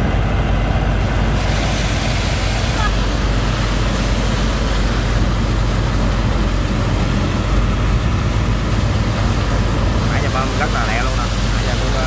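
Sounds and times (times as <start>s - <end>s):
dense rushing noise: 0.0s - 12.0s
pump engine humming: 0.0s - 12.0s.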